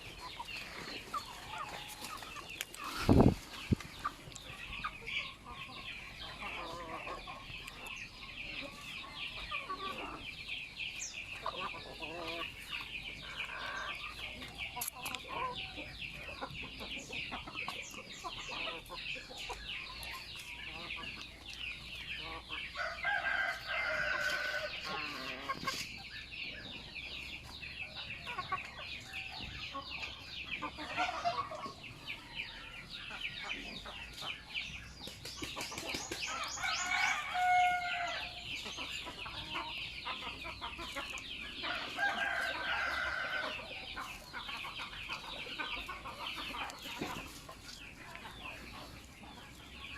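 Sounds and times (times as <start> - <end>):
chickens clucking: 0.0 - 49.9
roosters crowing: 22.7 - 25.8, 36.2 - 40.0, 41.4 - 44.2.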